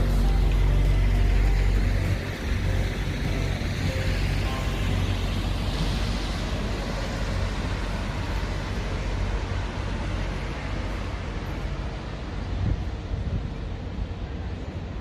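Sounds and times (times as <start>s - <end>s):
city street traffic noise: 0.0s - 15.0s
wind buffeting microphone: 5.5s - 15.0s.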